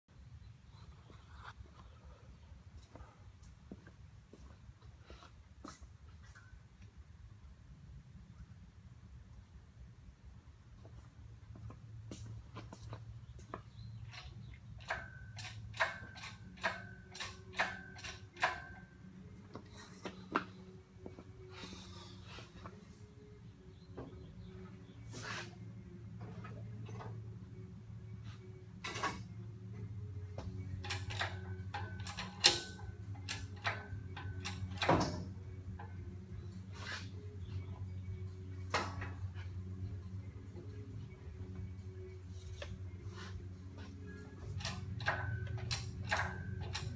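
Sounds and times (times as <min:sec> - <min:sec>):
low steady hum: 0:00.1 - 0:46.9
metal tools clinking: 0:14.1 - 0:18.9, 0:30.5 - 0:36.0, 0:43.8 - 0:46.9.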